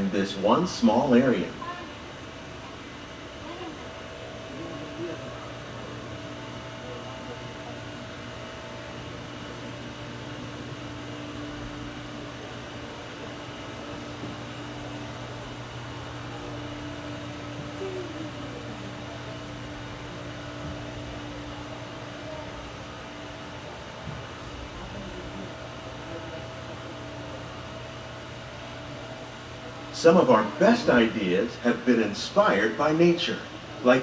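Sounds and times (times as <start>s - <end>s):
machinery hum with low drone: 0.0s - 34.0s.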